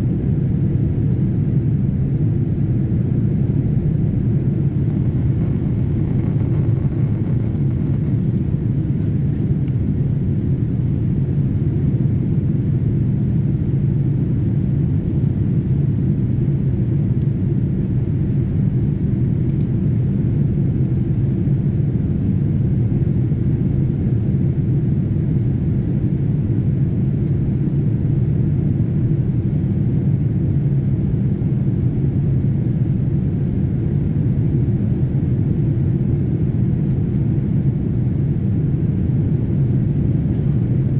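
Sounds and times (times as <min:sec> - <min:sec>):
airliner cabin drone: 0:00.0 - 0:40.9.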